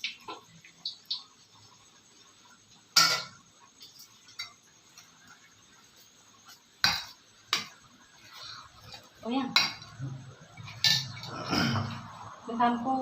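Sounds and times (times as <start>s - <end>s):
kitchenware clinking: 2.9s - 5.1s, 6.8s - 7.8s, 8.4s - 12.2s.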